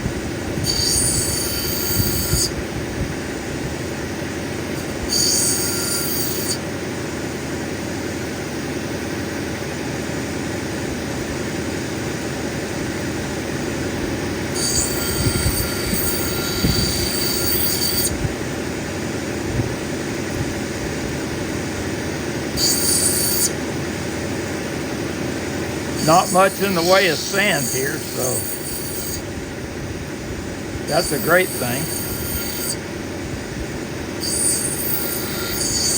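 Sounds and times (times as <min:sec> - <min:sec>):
grinding wheel running: 0:00.0 - 0:02.6, 0:04.5 - 0:06.7, 0:12.6 - 0:33.0, 0:33.8 - 0:35.9
high-pitched squealing hiss: 0:00.7 - 0:02.5, 0:14.6 - 0:18.1, 0:22.6 - 0:23.5, 0:25.9 - 0:29.2, 0:30.9 - 0:32.8, 0:34.2 - 0:35.9.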